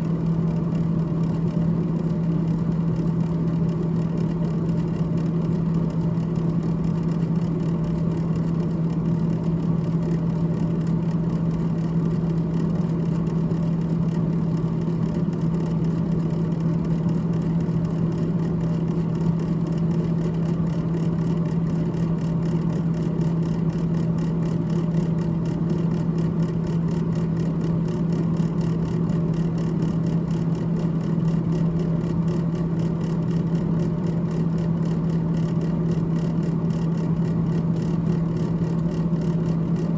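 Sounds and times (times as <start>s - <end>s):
freezer fan humming: 0.0s - 39.9s.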